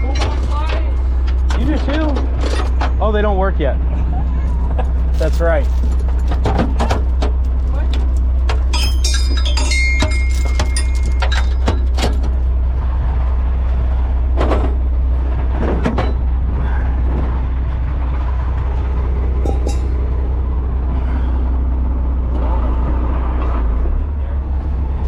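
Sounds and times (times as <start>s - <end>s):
metal chain clanking: 0.0s - 3.2s, 4.4s - 12.5s, 19.4s - 20.0s
tow truck engine idling: 0.0s - 25.0s.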